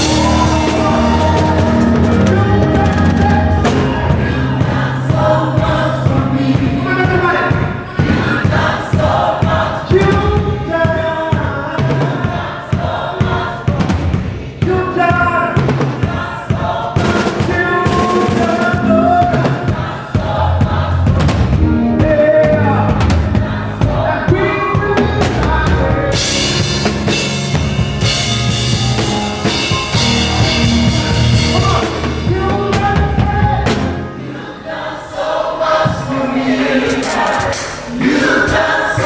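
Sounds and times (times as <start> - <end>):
bass line: 0.0 - 7.4, 20.3 - 34.1
band playing: 0.0 - 11.0, 17.0 - 39.0
drum hits: 0.0 - 34.1, 36.8 - 39.0
group of voices singing: 0.0 - 39.0.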